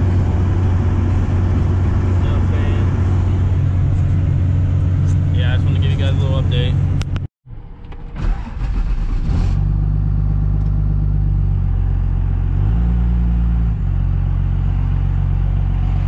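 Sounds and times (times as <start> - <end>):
diesel truck engine drone: 0.0 - 16.0
road noise: 0.0 - 16.0.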